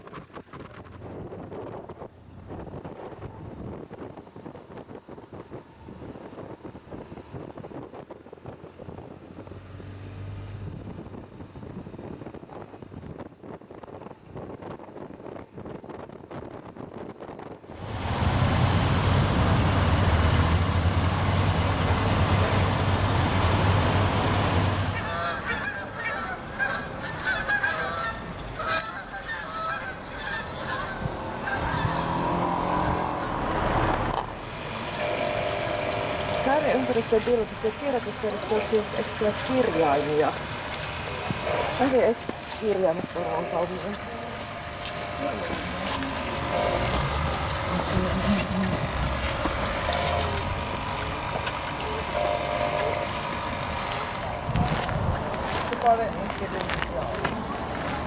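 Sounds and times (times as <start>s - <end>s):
wind buffeting microphone: 0.0s - 9.7s, 10.5s - 25.8s, 28.2s - 34.9s, 53.2s - 58.0s
low engine hum: 0.0s - 13.3s, 17.6s - 58.0s
honking bird calls: 24.9s - 33.3s
mechanical hum: 34.3s - 58.0s.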